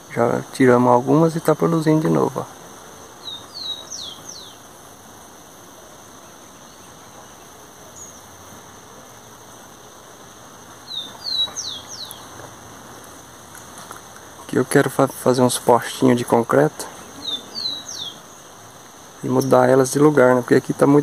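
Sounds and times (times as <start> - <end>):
faint high insect buzz: 0.0 - 21.0
songbird whistling: 3.2 - 4.6, 10.9 - 12.2, 17.2 - 18.3.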